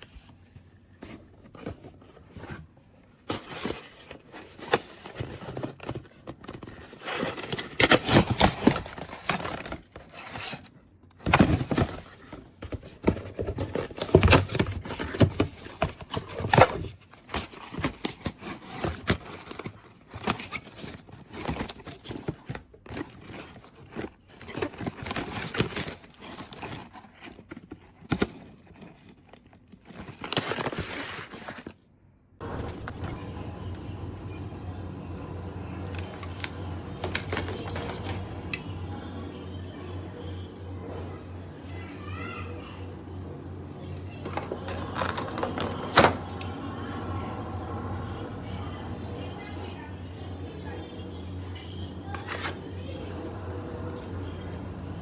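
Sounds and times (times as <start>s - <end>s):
packaging rustling and crinkling: 0.0s - 31.8s, 32.4s - 39.1s, 43.5s - 55.0s.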